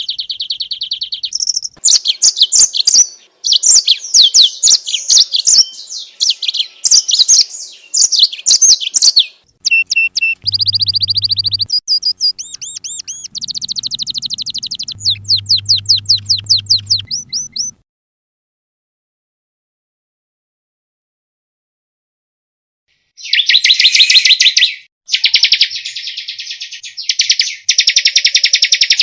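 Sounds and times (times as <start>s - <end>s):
bird trilling: 0.0s - 17.8s, 23.2s - 29.0s
bird whistling falling phrases: 0.0s - 17.8s, 23.2s - 29.0s
low hum: 10.4s - 17.8s.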